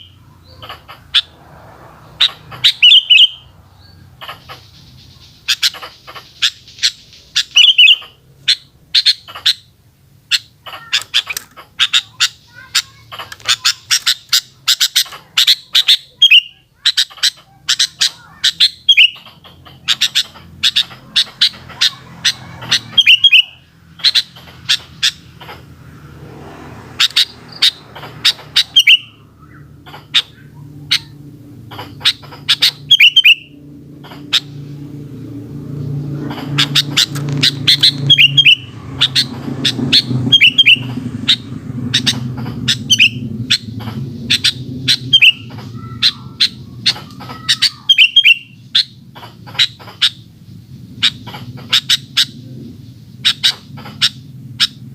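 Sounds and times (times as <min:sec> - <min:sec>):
slurred whistled bird note: 0:23.0 - 0:23.6, 0:37.8 - 0:38.7, 0:40.3 - 0:40.9.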